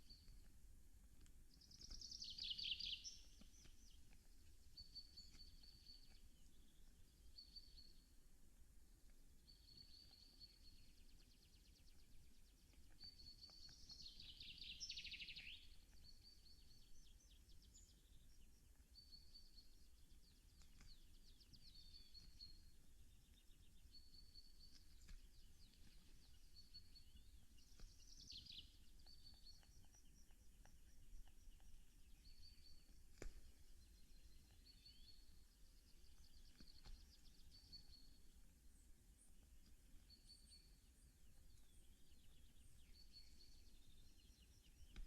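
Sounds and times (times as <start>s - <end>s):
songbird song: 0.0s - 45.0s
faint clicks: 24.6s - 35.4s.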